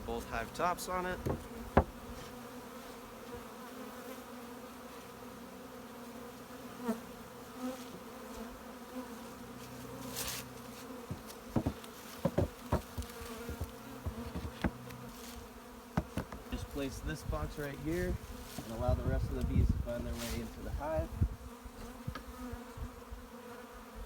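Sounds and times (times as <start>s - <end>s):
honey bees buzzing: 0.0s - 24.0s
sharp knocks: 1.2s - 2.0s, 11.1s - 14.8s, 16.0s - 16.4s.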